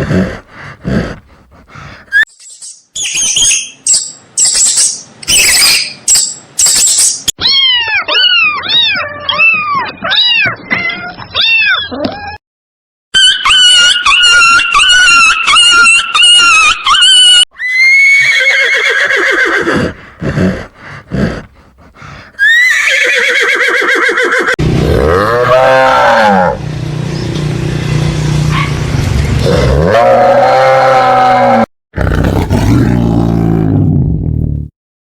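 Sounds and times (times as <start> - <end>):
cat meowing: 7.4 - 12.4
horse whinnying: 13.3 - 21.4, 22.4 - 26.6
deep animal call: 24.8 - 26.6, 29.4 - 33.7.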